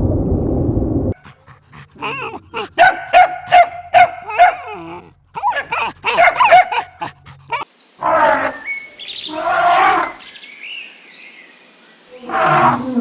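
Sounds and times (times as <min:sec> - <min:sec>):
animal yelping: 0:01.4 - 0:08.6
bird chirps: 0:07.5 - 0:12.2
animal harsh roars: 0:09.3 - 0:10.2, 0:12.2 - 0:13.0.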